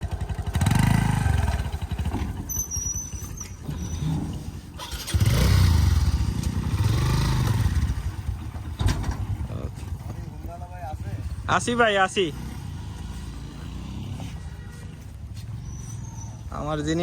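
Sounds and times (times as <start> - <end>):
motorcycle engine revving: 0.0 - 17.0
brief high squeal: 2.5 - 4.1.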